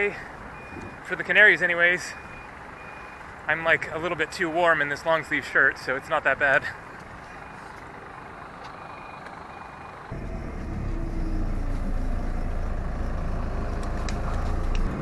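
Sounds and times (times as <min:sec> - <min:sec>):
heavy vehicle engine droning: 0:00.0 - 0:15.0
street noise: 0:00.0 - 0:15.0.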